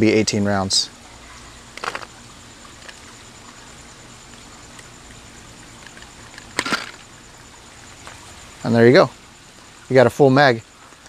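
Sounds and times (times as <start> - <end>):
faint ticks: 4.2 - 8.2
paintballs clattering into plastic: 5.8 - 7.0.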